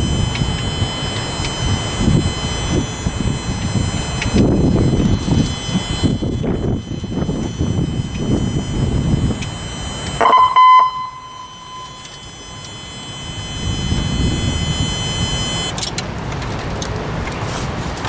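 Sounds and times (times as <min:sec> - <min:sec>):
short loud beep: 0:00.0 - 0:15.7
thin high whine: 0:00.0 - 0:15.8.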